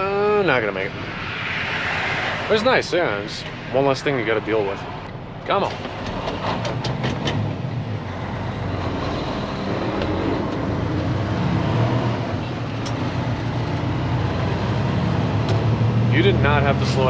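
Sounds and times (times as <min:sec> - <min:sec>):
truck diesel engine under load: 0:05.5 - 0:17.0.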